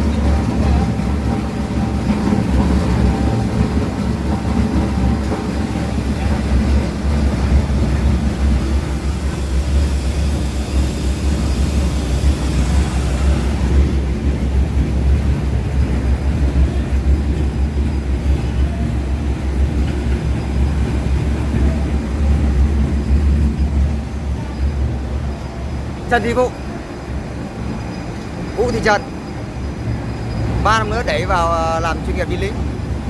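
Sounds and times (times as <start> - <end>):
industrial shredder rumbling: 0.0 - 33.0
high hiss: 7.1 - 14.1.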